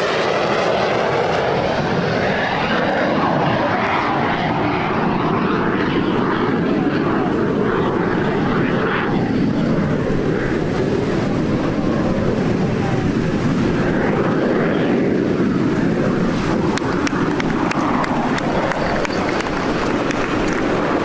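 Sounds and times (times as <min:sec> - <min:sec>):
distant jet aircraft roar: 0:00.0 - 0:21.0.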